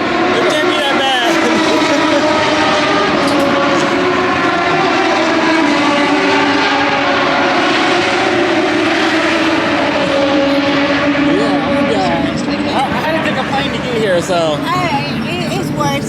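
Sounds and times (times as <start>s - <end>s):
loud engine drone: 0.0s - 16.0s.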